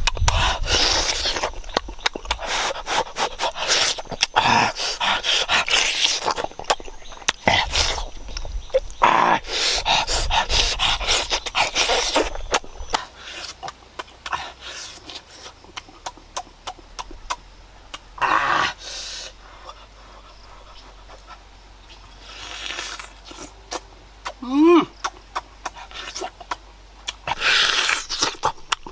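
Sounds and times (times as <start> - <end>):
chewing clicks: 0.0 - 9.0, 9.8 - 18.1, 25.0 - 28.9
person slurping: 0.0 - 21.5, 22.1 - 28.9
heavy breathing: 0.2 - 1.6, 2.3 - 6.1, 9.3 - 13.6, 18.2 - 22.4.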